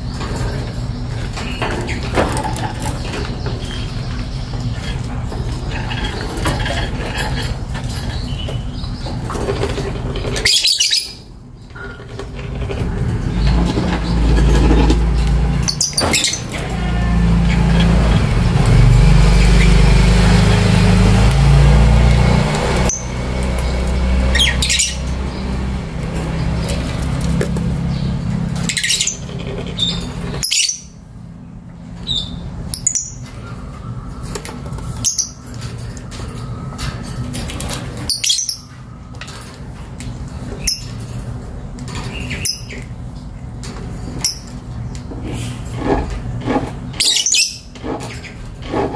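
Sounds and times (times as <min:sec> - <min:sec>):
lovebirds chirping and squawking: 0:00.0 - 0:48.9.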